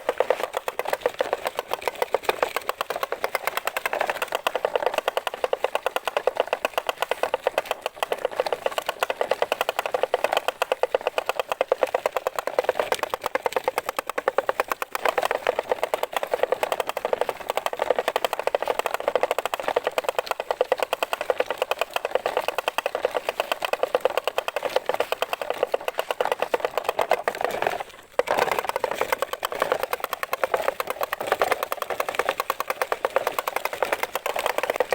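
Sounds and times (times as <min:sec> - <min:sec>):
small motor rattling buzz: 0:00.0 - 0:34.9.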